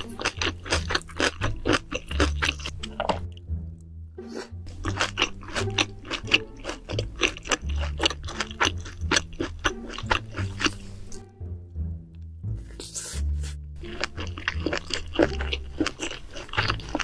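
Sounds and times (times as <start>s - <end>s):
chewing food: 0.0s - 3.4s, 4.7s - 11.3s, 13.8s - 17.0s
background music with bass line: 0.0s - 17.0s.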